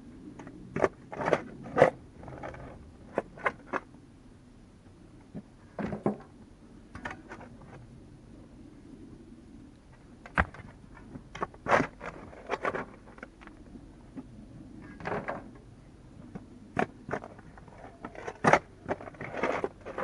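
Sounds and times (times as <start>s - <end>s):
sharp knocks on earth and stone: 10.3s - 10.8s
short scrapes in earth and stone: 11.4s - 13.3s, 17.1s - 20.0s.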